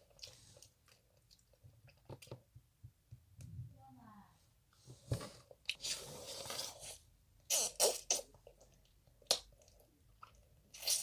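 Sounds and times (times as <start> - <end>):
wet crackly eating noises: 0.0 - 2.5, 5.6 - 11.0.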